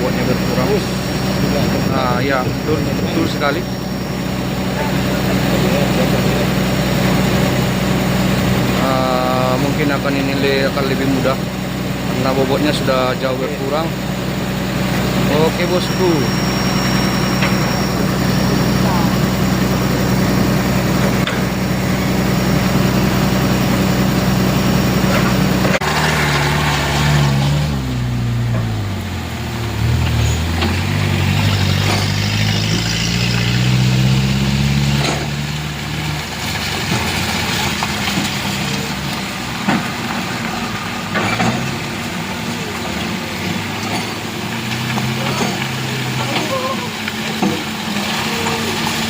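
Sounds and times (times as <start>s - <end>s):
heavy truck diesel engine revving: 0.0s - 49.0s.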